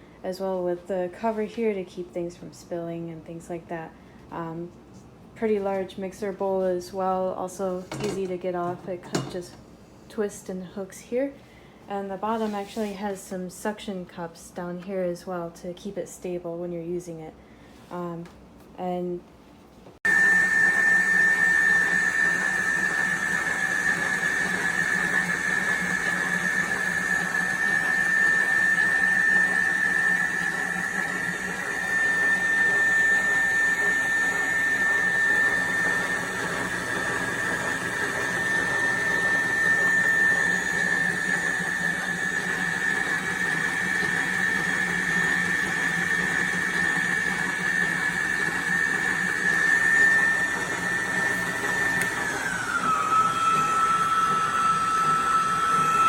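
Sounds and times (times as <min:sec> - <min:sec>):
stand mixer motor whining: 0:20.0 - 0:56.0.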